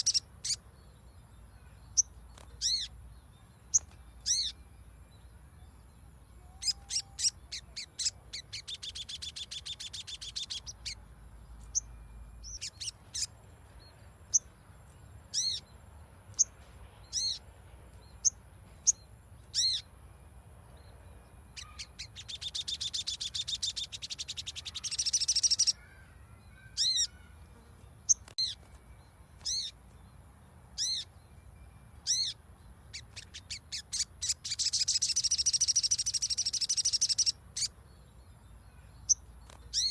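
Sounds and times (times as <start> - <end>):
buzzy chattering bird trills: 0.0 - 0.6, 6.5 - 11.0, 21.6 - 25.8, 26.7 - 27.4, 32.1 - 37.7
songbird sharp high chirps: 0.0 - 20.0, 20.7 - 27.4, 28.0 - 39.9.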